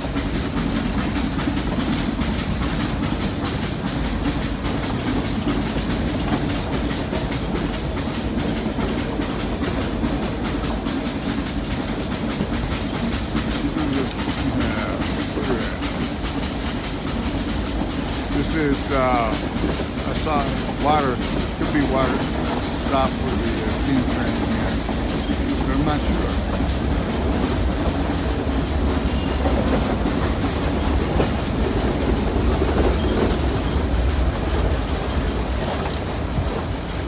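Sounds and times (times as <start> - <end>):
continuous rattle: 0.0 - 37.0
train coaches running on rails: 0.0 - 37.0.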